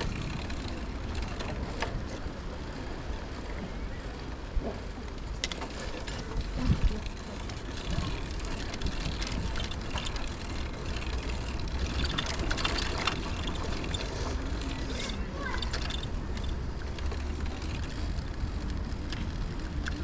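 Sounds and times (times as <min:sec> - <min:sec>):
bicycle rattles and clicks: 0:00.0 - 0:20.0
bicycle tyres rumbling: 0:00.0 - 0:20.0
bicycle bumps: 0:04.6 - 0:20.0
wind on microphone: 0:06.1 - 0:09.8.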